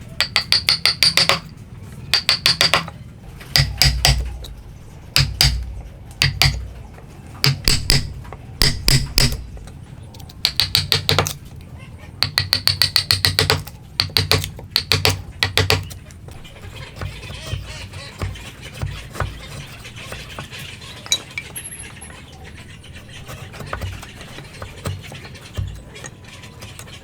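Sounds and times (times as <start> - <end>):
hammer striking a chisel: 0.2 - 1.5, 2.1 - 4.5, 5.2 - 6.8, 7.4 - 9.6, 10.4 - 11.4, 12.2 - 21.6, 23.3 - 26.9.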